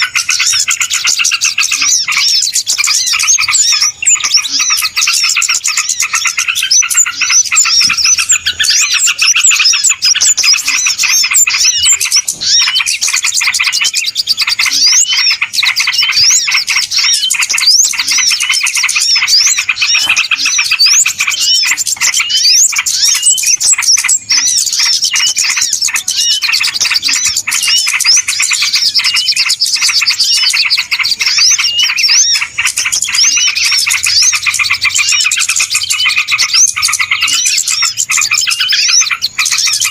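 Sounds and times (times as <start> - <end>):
flock of small birds chirping: 0.0 - 39.9.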